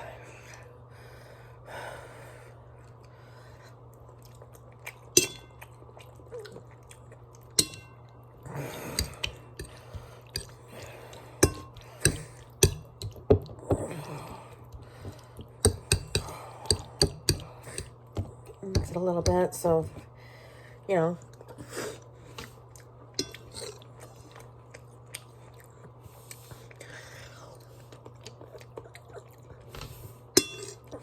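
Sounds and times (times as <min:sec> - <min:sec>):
steady low hum: 0:00.0 - 0:31.0
chewing: 0:02.8 - 0:18.6, 0:21.2 - 0:31.0
cutlery clinking on a dish: 0:05.2 - 0:05.6, 0:07.6 - 0:08.0, 0:30.4 - 0:30.8.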